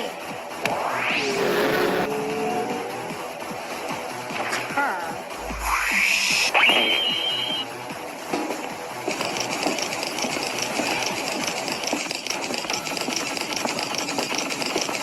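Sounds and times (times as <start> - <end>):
machine rhythmic clatter: 7.9 - 15.0.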